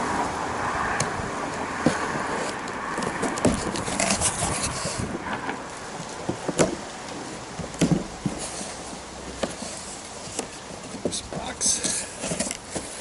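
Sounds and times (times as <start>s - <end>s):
cardboard box being handled: 1.8s - 13.0s
knocks and scrapes: 1.8s - 13.0s.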